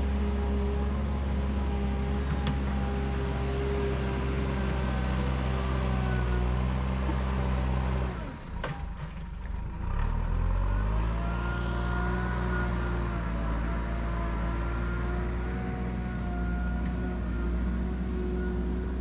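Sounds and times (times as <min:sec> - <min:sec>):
car engine accelerating: 0:09.5 - 0:16.1.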